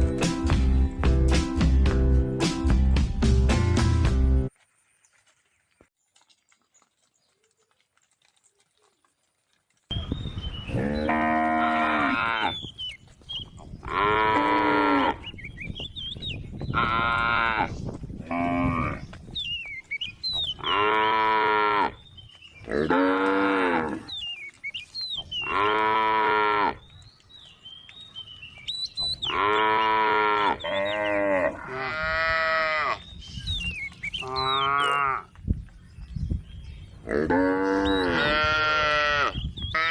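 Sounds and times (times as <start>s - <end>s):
cow mooing: 10.7s - 12.6s, 13.8s - 15.2s, 20.6s - 22.0s, 22.7s - 24.1s, 25.4s - 26.8s, 29.3s - 33.0s, 37.0s - 39.9s.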